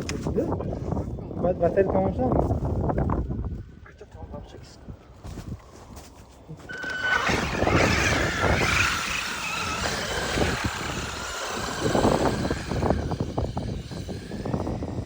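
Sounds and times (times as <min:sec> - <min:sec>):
tyres churning snow: 0:06.6 - 0:15.0
electric motor whining: 0:06.7 - 0:15.0.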